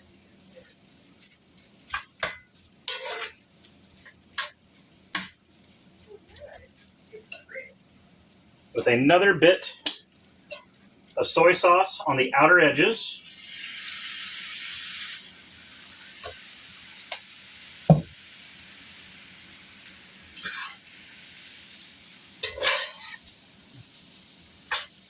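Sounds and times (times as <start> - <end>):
rice sizzling in hot pan: 0.0 - 25.0
utensil scraping pan: 1.9 - 3.4, 20.4 - 20.8, 22.4 - 23.3
utensil knocking on pan: 17.9 - 18.2.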